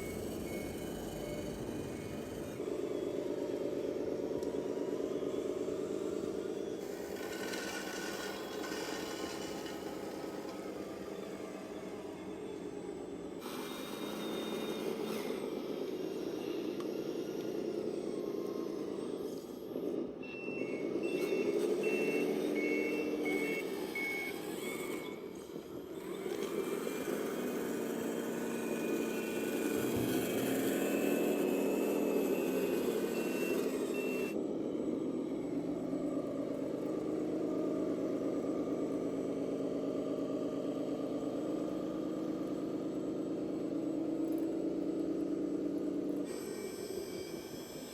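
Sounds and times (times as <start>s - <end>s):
electronic diesel engine sound: 0.0s - 47.9s
reversing beeper: 4.8s - 19.2s, 20.2s - 25.2s, 29.8s - 34.9s, 46.3s - 47.9s.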